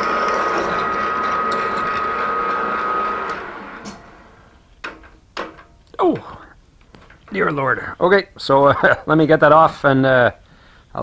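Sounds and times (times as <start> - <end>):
drill cutting metal with whine: 0.0 - 4.6.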